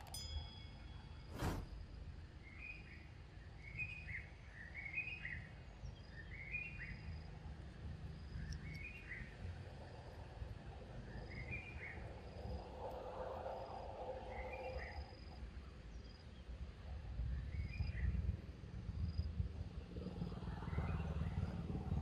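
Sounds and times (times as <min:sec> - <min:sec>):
faint high thin notes: 0:00.0 - 0:02.1
low rumble: 0:01.2 - 0:02.3.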